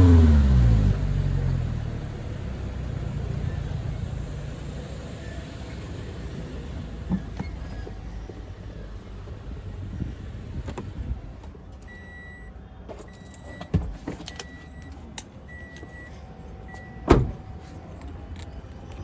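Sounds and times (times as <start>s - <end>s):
car warning chime beeps: 11.8s - 17.5s
car door thud: 17.0s - 17.5s.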